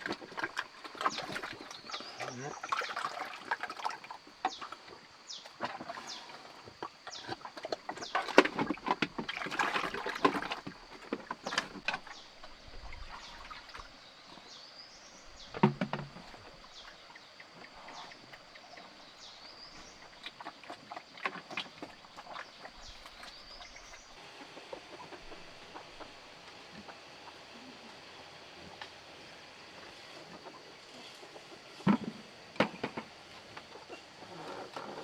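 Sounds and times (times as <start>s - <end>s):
water splashing and sloshing: 0.0s - 27.7s.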